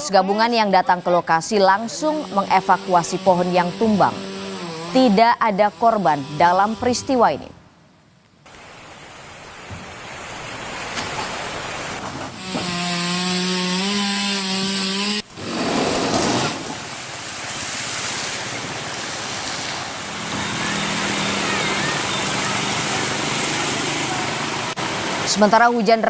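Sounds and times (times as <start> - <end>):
chainsaw cutting wood: 1.8 - 7.2, 12.0 - 17.1.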